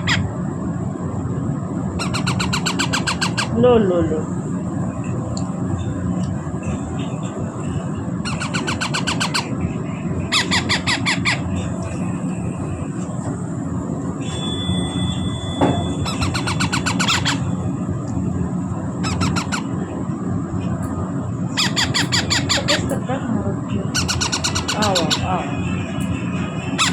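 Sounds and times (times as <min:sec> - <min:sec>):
parrot chicks squealing begging calls: 0:00.0 - 0:00.4, 0:02.0 - 0:03.6, 0:08.2 - 0:09.6, 0:10.2 - 0:11.7, 0:15.9 - 0:17.6, 0:19.0 - 0:19.9, 0:21.5 - 0:23.0, 0:23.9 - 0:25.5, 0:26.6 - 0:26.9
low background hum: 0:00.0 - 0:26.9.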